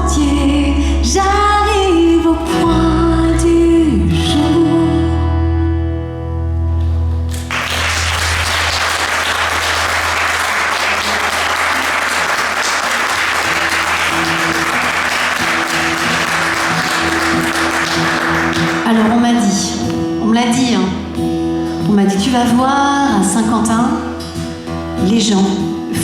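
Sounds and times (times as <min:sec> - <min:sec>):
audience applause: 0:07.3 - 0:19.0.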